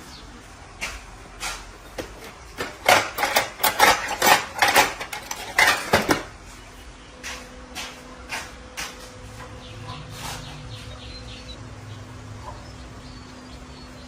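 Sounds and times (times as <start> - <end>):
metal pieces clinking: 2.6 - 6.3.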